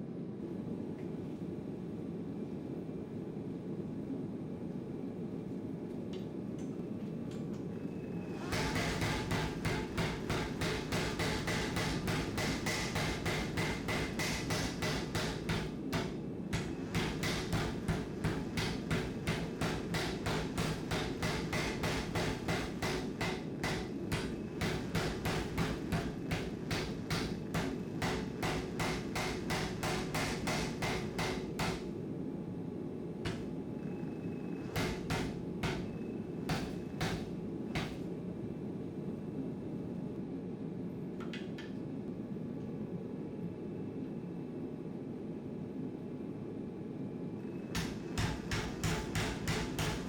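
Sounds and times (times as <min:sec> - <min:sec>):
steady low rumble: 0:00.0 - 0:41.2
hammer striking steel on anvil: 0:08.4 - 0:31.9, 0:33.3 - 0:33.5, 0:34.6 - 0:38.0, 0:47.7 - 0:50.0.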